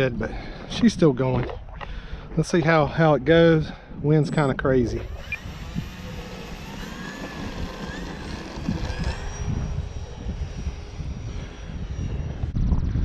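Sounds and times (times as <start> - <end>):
wind buffeting microphone: 0.0 - 13.0
model plane motor whining: 4.9 - 13.0.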